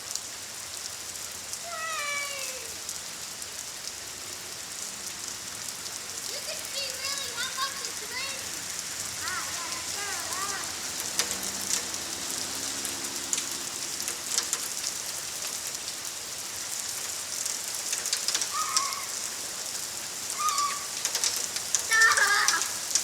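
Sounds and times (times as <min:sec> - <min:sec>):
heavy rain pouring: 0:00.0 - 0:23.0
raindrops striking close by: 0:00.0 - 0:23.0
short high-pitched calls: 0:20.4 - 0:21.0.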